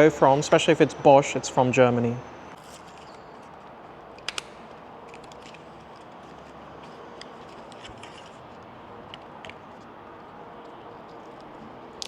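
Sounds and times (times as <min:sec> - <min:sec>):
room tone hiss: 0:00.0 - 0:03.3.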